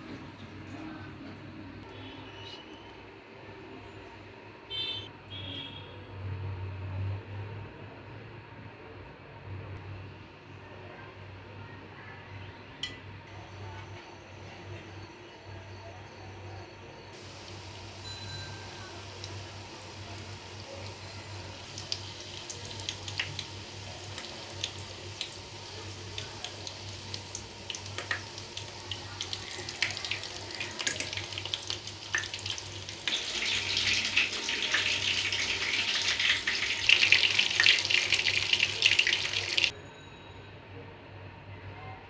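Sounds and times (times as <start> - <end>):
food frying in hot oil: 17.2 - 39.7
oil crackles and pops: 26.1 - 39.7.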